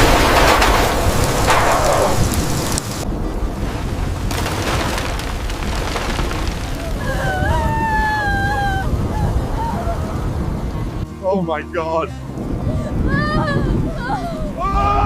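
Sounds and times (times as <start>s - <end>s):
thunder rumbling: 0.0s - 11.0s
heavy rain: 0.0s - 11.1s.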